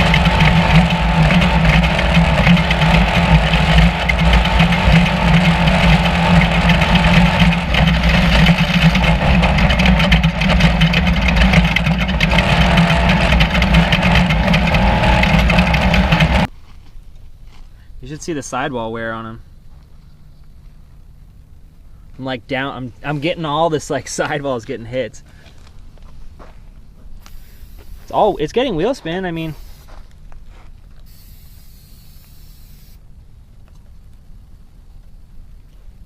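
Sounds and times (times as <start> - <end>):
truck engine running loud: 0.0 - 16.5
dense steady noise: 31.1 - 35.6.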